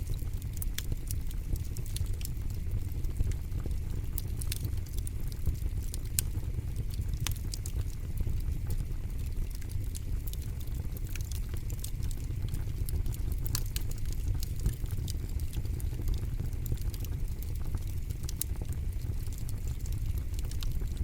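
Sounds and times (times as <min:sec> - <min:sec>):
campfire crackling and popping: 0:00.0 - 0:21.0
low fire rumble: 0:00.0 - 0:21.0.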